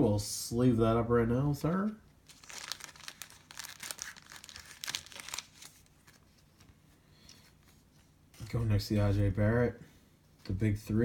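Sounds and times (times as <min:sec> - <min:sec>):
thin plastic crinkling: 0:01.8 - 0:08.6.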